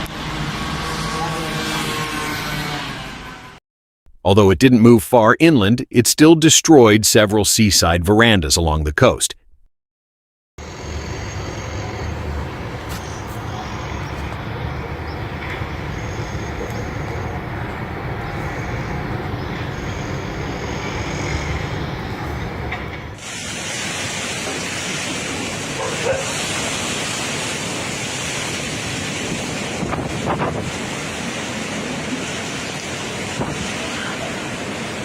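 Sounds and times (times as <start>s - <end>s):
strong wind hiss: 10.6s - 35.0s
storm wind rumbling on microphone: 11.1s - 35.0s.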